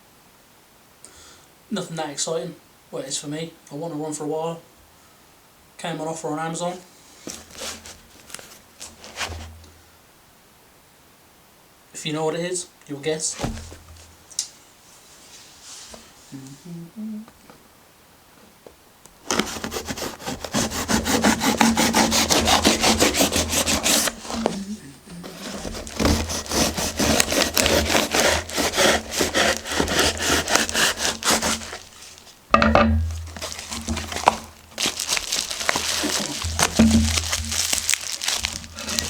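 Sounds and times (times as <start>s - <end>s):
cardboard being cut and torn: 7.4s - 9.5s, 19.2s - 32.4s, 33.3s - 39.0s.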